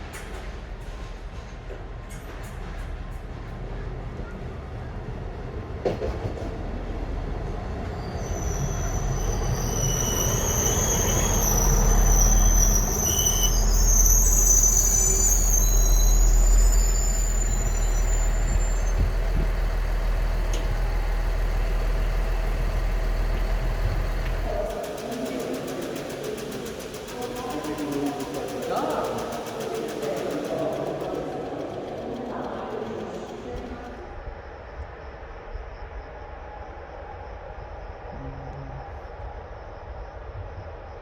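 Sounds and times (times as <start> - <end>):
train wheel squeal: 0.0 - 5.0, 5.8 - 34.4
train rumbling: 0.0 - 41.0.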